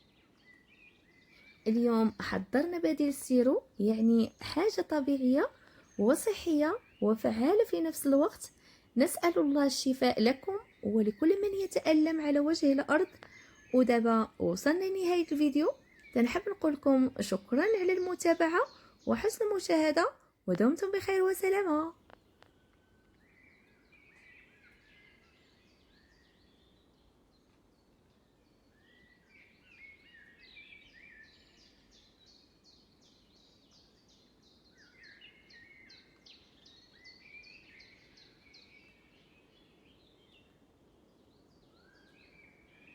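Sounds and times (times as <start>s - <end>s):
faint birdsong: 0.0s - 42.9s.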